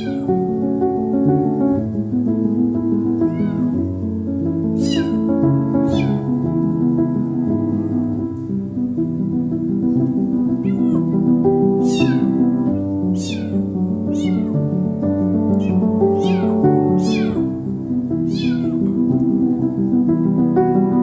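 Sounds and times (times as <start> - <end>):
kitten meowing: 0.0 - 0.4, 3.2 - 3.8, 4.8 - 6.4, 10.6 - 14.6, 15.5 - 17.6, 18.2 - 19.1.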